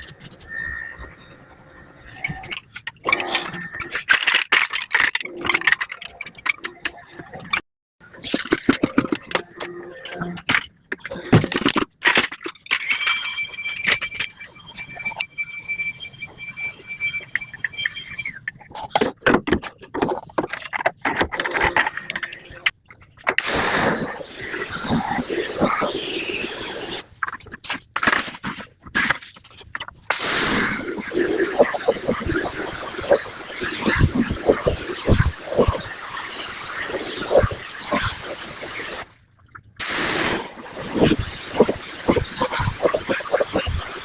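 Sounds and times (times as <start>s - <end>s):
parts being handled clattering: 3.9s - 6.7s
loud spray hiss: 23.4s - 27.1s, 30.1s - 39.0s, 39.8s - 44.0s.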